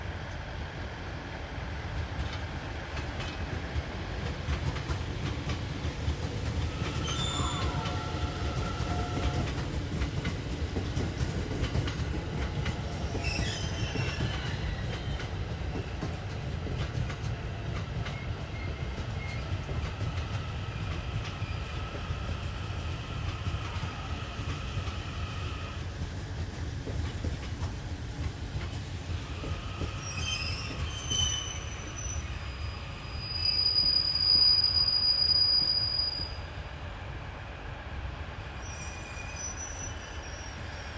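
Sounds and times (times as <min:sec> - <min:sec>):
train rumbling on rails: 0:00.0 - 0:40.9
train wheels squealing: 0:06.7 - 0:09.5, 0:13.0 - 0:15.8, 0:18.0 - 0:19.7, 0:20.4 - 0:25.8, 0:29.2 - 0:36.6, 0:38.6 - 0:40.9.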